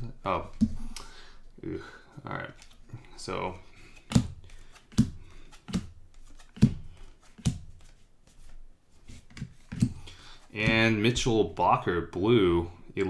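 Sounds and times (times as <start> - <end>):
cards rustling: 2.1 - 11.2
cards tapping on table: 4.0 - 8.4, 9.2 - 10.8.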